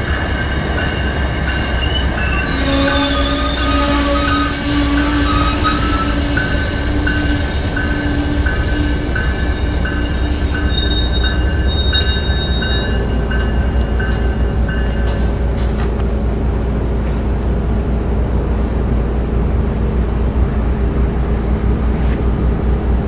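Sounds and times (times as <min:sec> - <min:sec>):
train wheels squealing: 0:00.0 - 0:15.4
train rolling with low rumble: 0:00.0 - 0:23.0.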